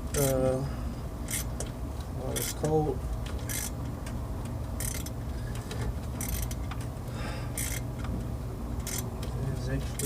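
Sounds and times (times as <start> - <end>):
socket ratchet clicking: 4.8 - 5.2, 7.6 - 8.1, 8.8 - 9.1.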